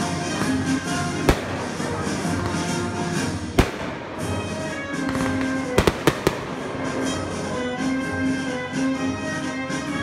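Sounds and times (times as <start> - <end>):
music: 0.0 - 10.0
fireworks bangs: 0.4 - 7.7.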